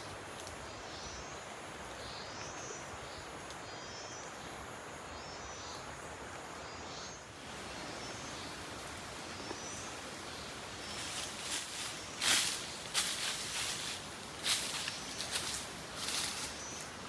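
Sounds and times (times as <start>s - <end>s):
faint insect trills: 0.0s - 17.0s
steady background hiss: 0.0s - 17.0s.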